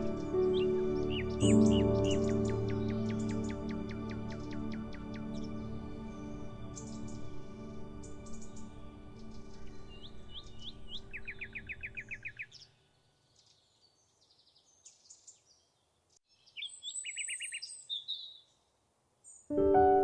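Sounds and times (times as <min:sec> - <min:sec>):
songbirds singing: 0:00.0 - 0:19.5.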